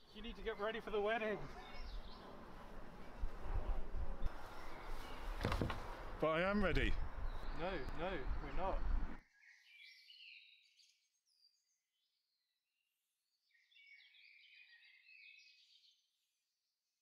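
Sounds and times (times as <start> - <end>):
faint bird chirping: 0.0 - 2.4, 6.4 - 16.3.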